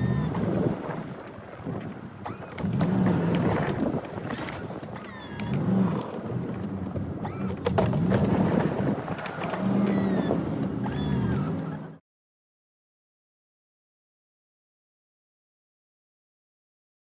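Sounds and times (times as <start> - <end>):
truck engine revving: 0.0 - 0.8, 2.3 - 12.0.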